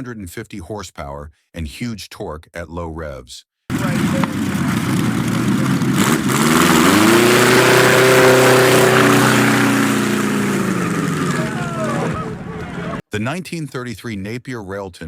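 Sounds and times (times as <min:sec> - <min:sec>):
aero engine revving: 0:03.7 - 0:13.0.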